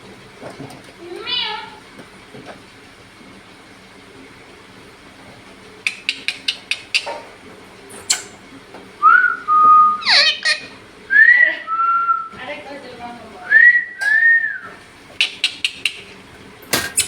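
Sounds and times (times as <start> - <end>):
parrot clicks: 5.9 - 7.0
parrot whistling: 9.0 - 12.3, 13.5 - 16.1.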